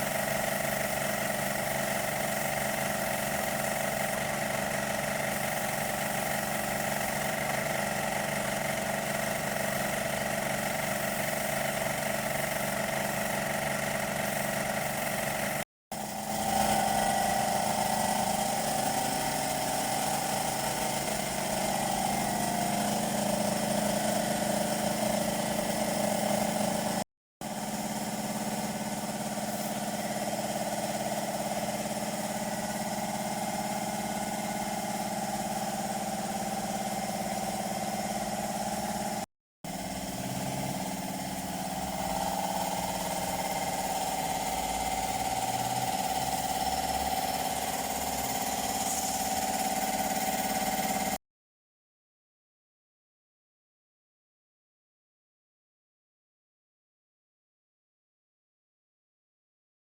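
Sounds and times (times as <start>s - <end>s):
motor running steadily: 0.0s - 51.2s.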